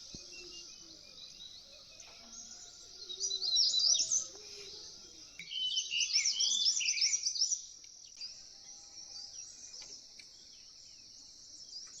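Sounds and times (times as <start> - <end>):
birds chirping: 0.0 - 8.4
insects droning: 0.0 - 12.0.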